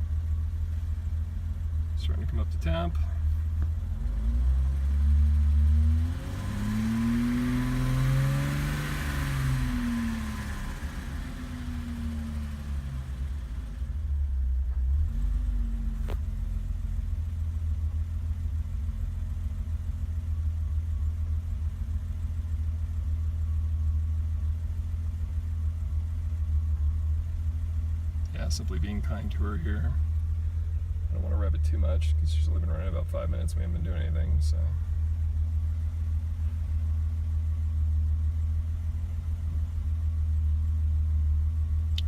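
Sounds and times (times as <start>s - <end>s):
car engine idling with throttle blips: 0.0s - 42.0s.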